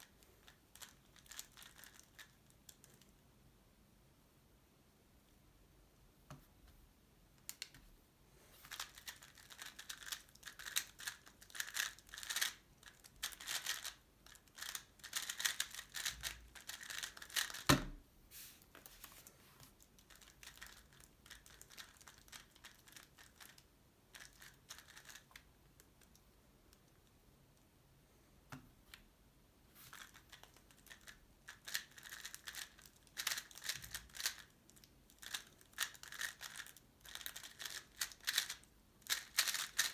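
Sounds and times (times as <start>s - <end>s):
puzzle cube plastic clicking: 8.7s - 14.0s, 14.6s - 17.7s, 35.2s - 39.9s.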